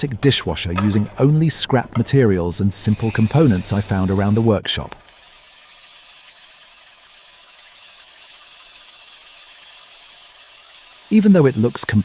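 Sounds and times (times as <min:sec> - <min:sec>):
steady hiss: 0:02.7 - 0:12.0.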